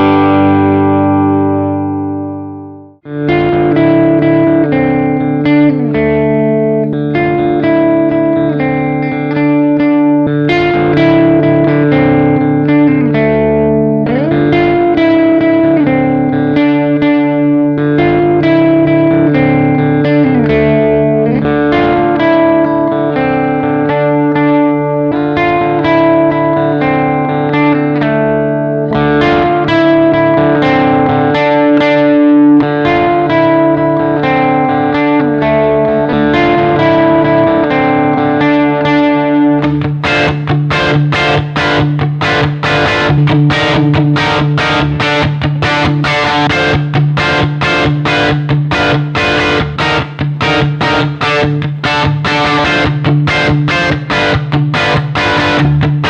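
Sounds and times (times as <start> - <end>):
distorted electric guitar: 0.0 - 56.0.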